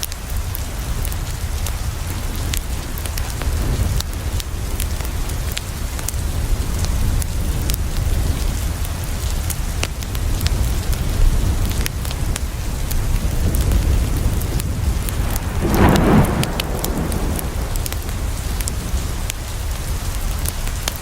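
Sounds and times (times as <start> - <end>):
rain falling: 0.0 - 21.0
thunder rumble: 13.5 - 20.1
wood fire crackling: 14.4 - 19.6
deep low rumble: 14.8 - 19.3.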